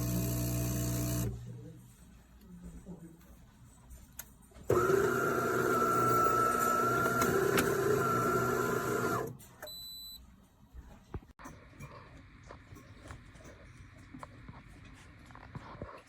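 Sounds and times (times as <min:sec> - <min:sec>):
espresso machine whining: 0:00.0 - 0:01.4, 0:04.7 - 0:09.3.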